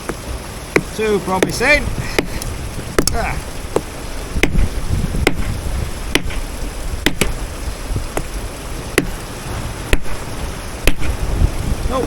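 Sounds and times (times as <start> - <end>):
wind rumble on microphone: 0.0 - 12.0
hammer tapping stone: 0.8 - 1.6, 2.2 - 5.5, 6.1 - 6.4, 7.0 - 7.4.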